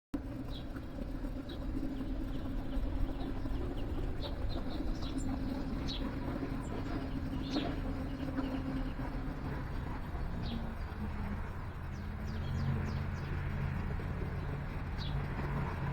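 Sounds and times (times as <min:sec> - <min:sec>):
songbirds chirping: 0:00.2 - 0:15.9
steady low hum: 0:00.2 - 0:15.9.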